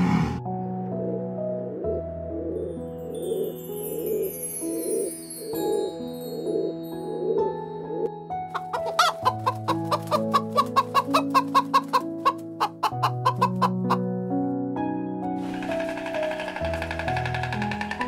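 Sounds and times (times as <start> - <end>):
background music sustained notes: 0.0 - 18.0
hens clucking: 8.5 - 14.0.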